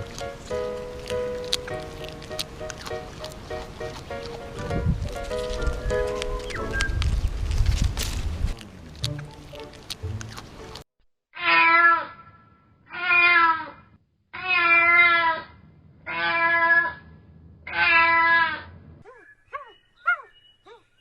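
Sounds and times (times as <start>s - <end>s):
animal wavering calls: 14.4s - 20.9s.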